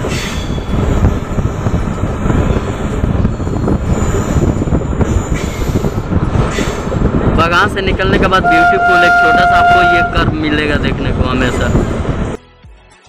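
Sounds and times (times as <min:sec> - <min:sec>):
train wheels rumbling on rail: 0:00.0 - 0:12.4
wind on microphone: 0:00.0 - 0:12.4.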